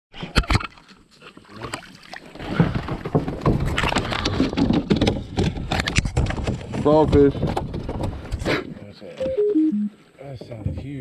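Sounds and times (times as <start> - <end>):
water splashing and sloshing: 0.2 - 8.3.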